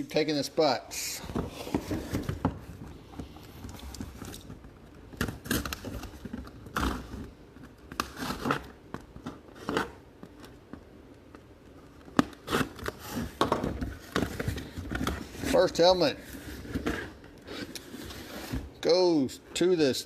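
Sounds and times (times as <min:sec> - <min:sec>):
cardboard and plastic tearing: 0:03.8 - 0:10.6, 0:12.0 - 0:15.9.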